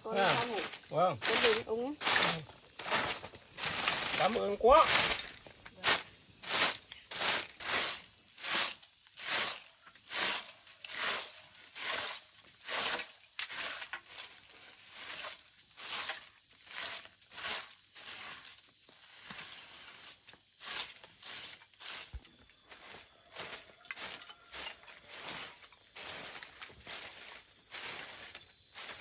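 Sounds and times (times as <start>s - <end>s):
footsteps on gritty path: 0.0s - 9.5s, 20.4s - 29.0s.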